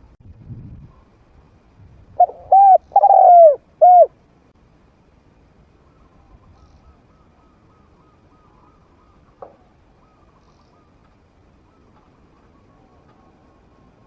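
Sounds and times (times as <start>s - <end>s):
dove cooing: 2.2s - 4.2s.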